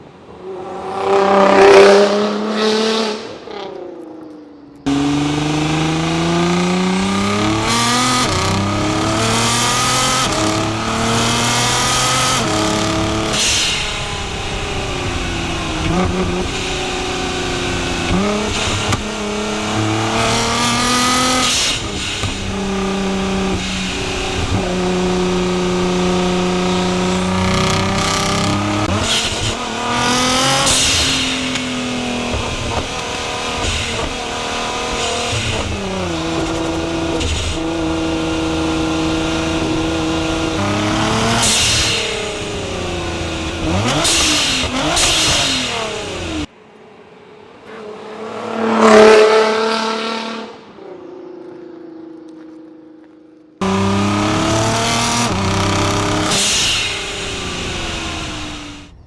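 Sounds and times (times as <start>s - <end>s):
car passing by: 0.0s - 3.7s, 4.9s - 50.8s
sports car engine revving: 4.9s - 46.5s, 53.6s - 59.0s.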